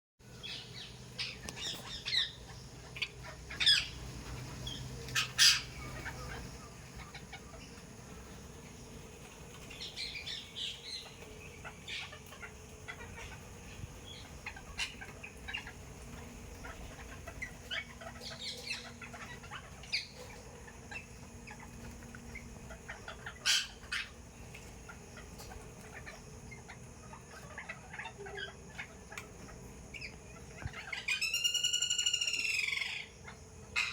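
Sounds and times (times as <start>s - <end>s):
birds calling and chirping: 0.2s - 33.9s.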